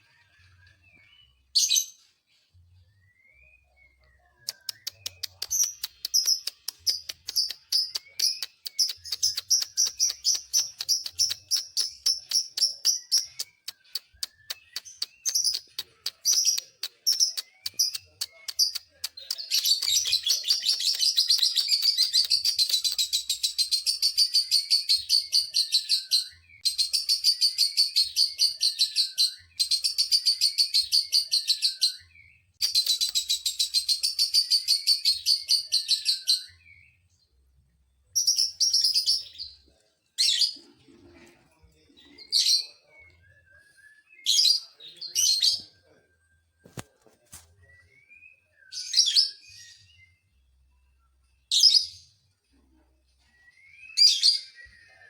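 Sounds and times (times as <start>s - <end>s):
lovebird chirping and trilling: 4.5s - 31.7s.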